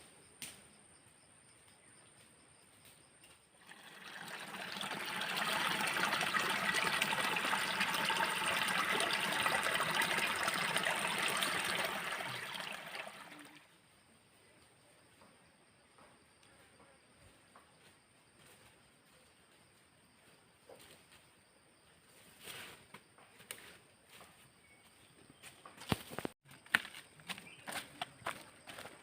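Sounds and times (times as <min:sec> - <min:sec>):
water trickling and splashing: 0:03.6 - 0:13.7.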